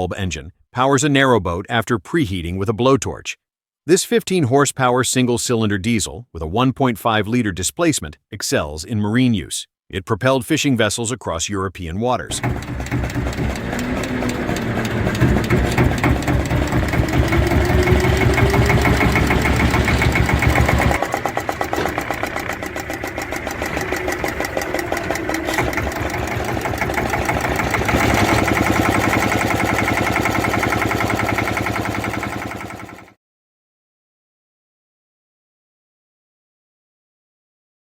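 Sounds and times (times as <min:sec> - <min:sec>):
diesel engine running: 0:12.3 - 0:33.1.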